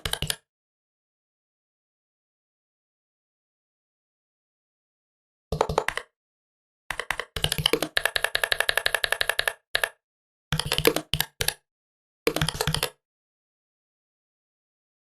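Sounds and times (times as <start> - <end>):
typing on laptop keyboard: 0.0 - 0.4, 5.5 - 6.1, 6.9 - 11.6, 12.3 - 13.0.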